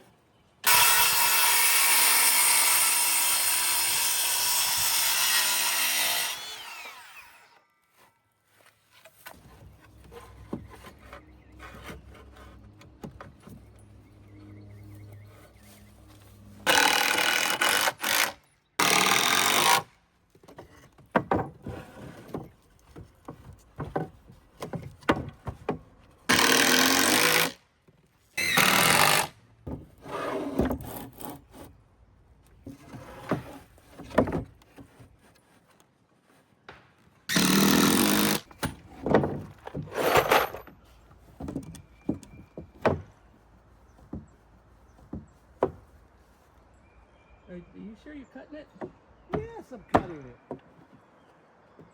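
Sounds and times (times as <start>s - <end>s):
power tool on wooden boards: 0.6s - 7.6s, 16.6s - 19.9s, 26.3s - 27.6s, 28.4s - 29.4s, 37.3s - 38.8s
lumber knocking and clattering: 20.4s - 26.1s, 38.5s - 40.5s, 41.1s - 43.2s, 44.0s - 44.4s, 45.0s - 46.0s.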